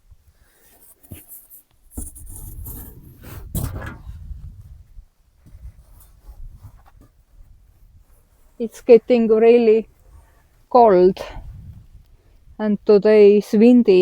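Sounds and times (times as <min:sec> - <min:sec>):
rustling and scraping from handling: 0:00.2 - 0:12.1
wind buffeting microphone: 0:02.0 - 0:13.0.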